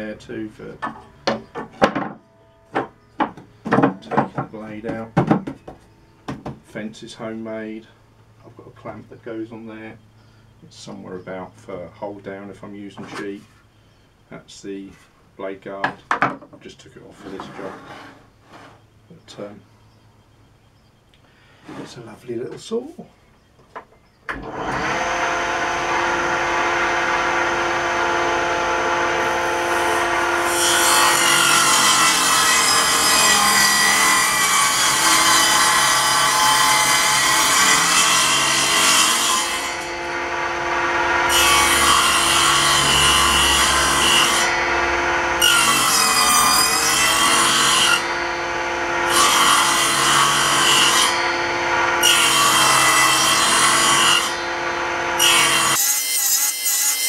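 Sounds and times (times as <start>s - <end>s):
table saw motor running: 24.3s - 56.2s
saw ripping through wood: 24.3s - 57.0s.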